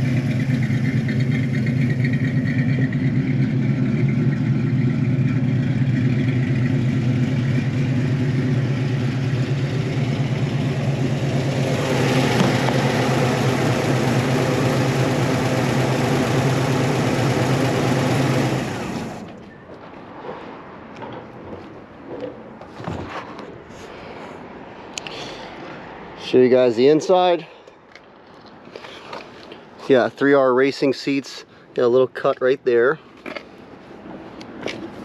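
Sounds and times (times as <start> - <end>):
engine idling: 0.0 - 19.4.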